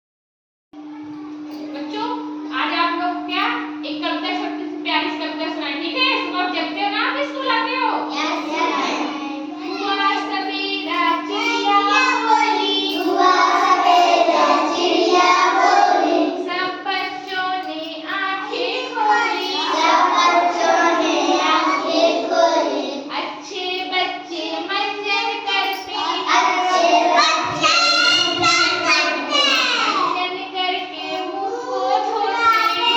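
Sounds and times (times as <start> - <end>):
steady hum: 0.8 - 32.9
child singing a rhyme: 8.0 - 32.9.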